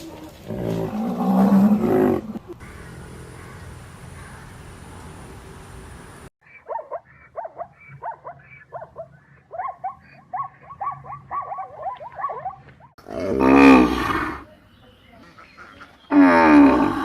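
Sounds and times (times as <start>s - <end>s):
animal high yelps: 6.6s - 12.9s.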